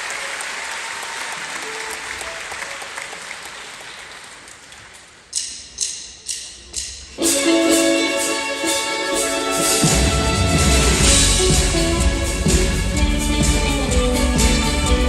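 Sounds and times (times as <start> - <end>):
audience applauding: 0.0 - 5.2
rock band playing: 7.2 - 15.0.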